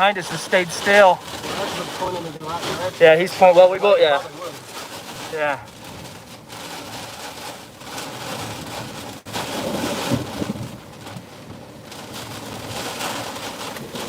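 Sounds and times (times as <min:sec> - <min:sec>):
heavy rain pounding a vehicle: 0:00.0 - 0:14.0
strong wind gusts: 0:08.5 - 0:14.0.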